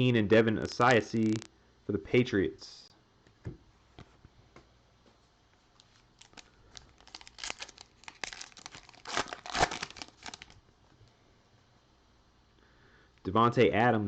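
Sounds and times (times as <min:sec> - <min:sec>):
foil wrapper tearing and crinkling: 0:05.8 - 0:10.6.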